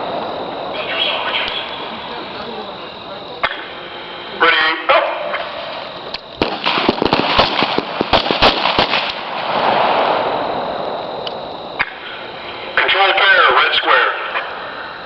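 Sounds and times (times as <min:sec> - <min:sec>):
steady rushing noise: 0:00.0 - 0:15.0
rifle shots: 0:06.4 - 0:10.3.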